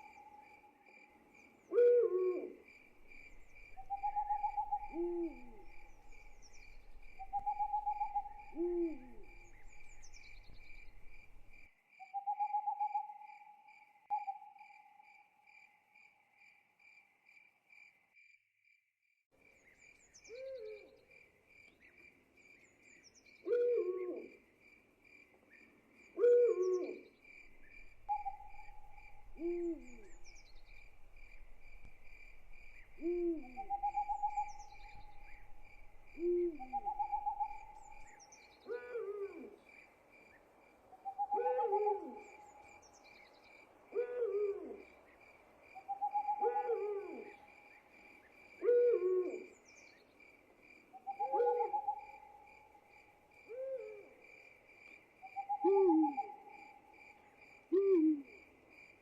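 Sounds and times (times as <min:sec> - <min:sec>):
insects chirping trill: 0:00.0 - 0:18.3, 0:26.3 - 0:44.2
owls hooting: 0:01.7 - 0:11.4, 0:27.6 - 0:38.1, 0:41.0 - 0:42.6, 0:45.9 - 0:47.4, 0:51.0 - 0:52.2, 0:55.4 - 0:56.4.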